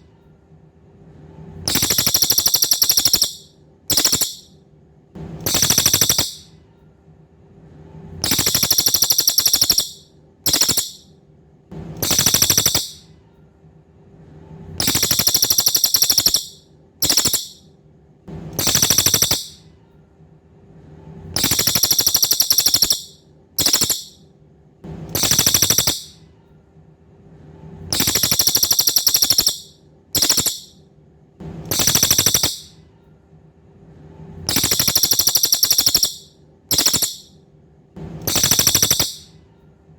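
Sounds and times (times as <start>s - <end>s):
faint low hum: 0.0s - 39.9s
songbird buzzy trills: 1.7s - 4.5s, 5.4s - 6.5s, 8.2s - 11.1s, 12.0s - 13.0s, 14.8s - 17.6s, 18.6s - 19.6s, 21.4s - 24.2s, 25.1s - 26.2s, 27.9s - 30.8s, 31.7s - 32.8s, 34.5s - 37.3s, 38.2s - 39.3s.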